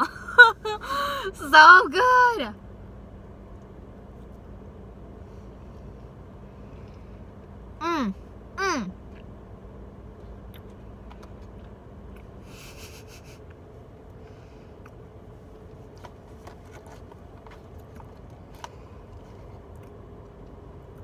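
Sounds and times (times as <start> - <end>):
car interior hum: 0.0 - 21.0
person chewing food: 10.1 - 12.4, 14.6 - 21.0.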